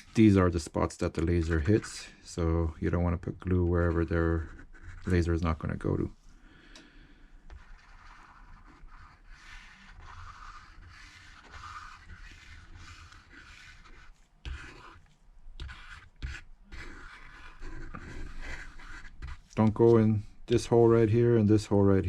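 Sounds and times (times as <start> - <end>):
glue tube nozzle scraping phone: 7.5 - 20.0.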